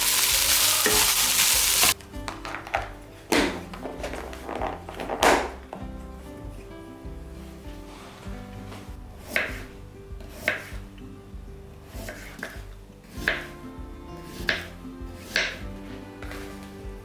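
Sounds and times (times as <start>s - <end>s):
soft background music: 0.0s - 17.0s
knife chopping on cutting board: 3.3s - 4.4s, 9.2s - 10.9s, 11.8s - 13.6s, 14.2s - 16.7s.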